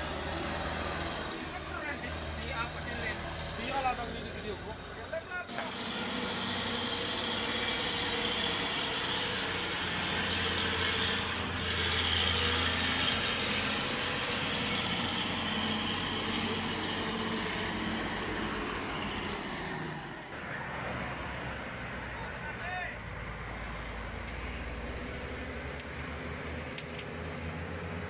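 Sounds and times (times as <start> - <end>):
heavy engine humming: 0.0 - 28.0.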